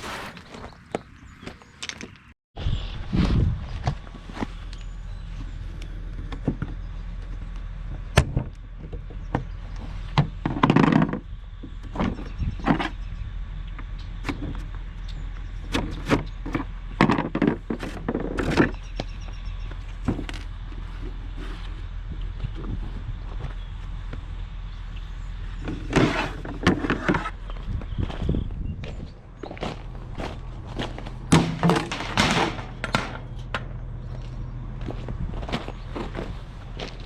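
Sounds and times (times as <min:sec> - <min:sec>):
low hum: 0:02.6 - 0:37.0
knocks and clicks of hard objects: 0:31.3 - 0:33.8.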